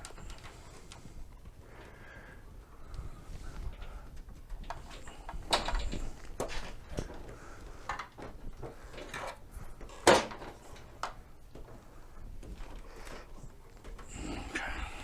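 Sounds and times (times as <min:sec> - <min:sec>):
clunks and scrapes of metal parts: 0:04.6 - 0:11.1.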